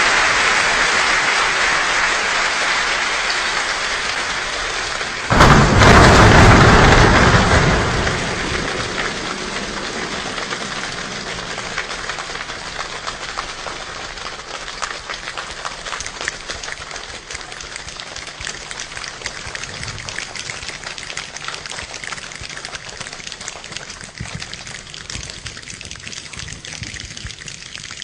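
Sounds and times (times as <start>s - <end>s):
imitated rain patter: 0.0s - 28.0s
imitated thunder crash: 5.3s - 12.7s.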